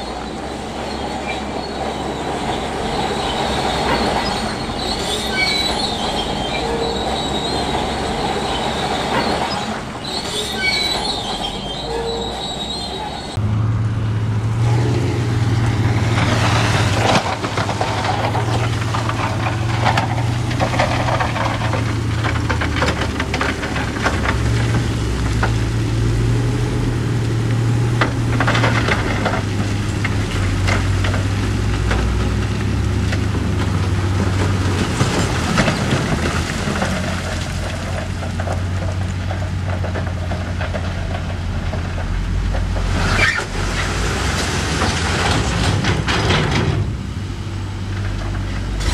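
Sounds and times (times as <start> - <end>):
diesel machinery engine running: 0.0 - 48.9
rock and steel clattering: 16.0 - 26.2, 27.6 - 47.1.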